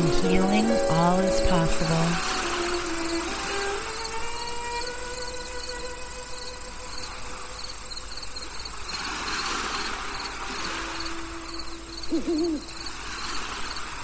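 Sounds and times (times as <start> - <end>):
ambient music: 0.0 - 6.7
crickets chirping: 0.0 - 14.0.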